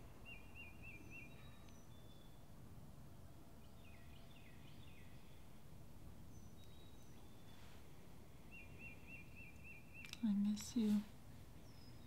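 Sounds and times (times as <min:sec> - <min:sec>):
faint birdsong: 0:00.0 - 0:12.0
low steady hum: 0:00.0 - 0:12.0.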